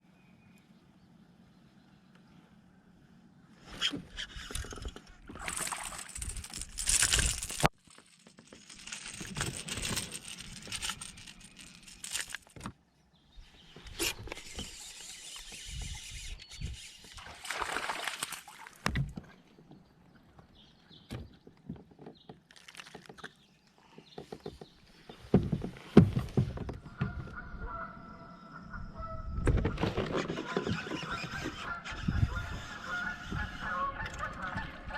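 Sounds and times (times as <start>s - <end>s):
water splashing: 5.3s - 7.6s, 17.2s - 19.0s.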